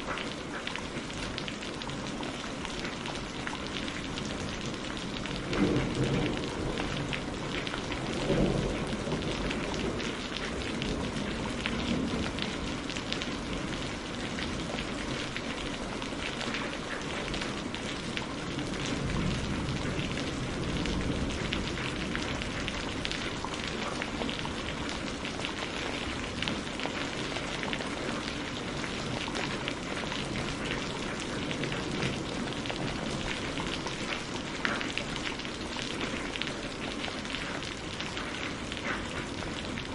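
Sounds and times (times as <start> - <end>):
steady rain falling: 0.0 - 39.9
thunder rumbling: 5.0 - 12.9.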